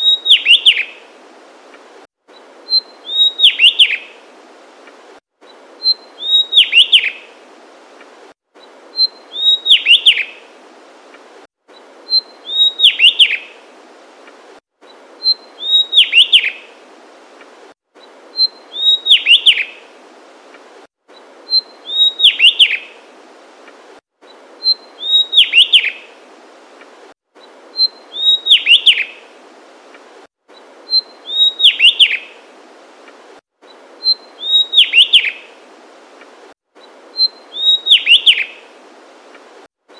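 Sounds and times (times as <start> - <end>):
faint steady hiss: 0.0 - 39.9.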